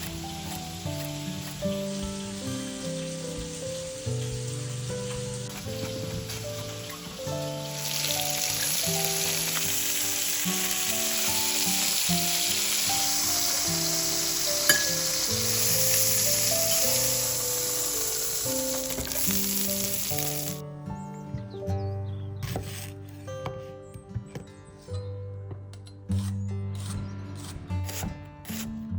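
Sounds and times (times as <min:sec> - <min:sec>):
food sizzling in a pan: 0:00.0 - 0:20.6
soft background music: 0:00.0 - 0:28.9.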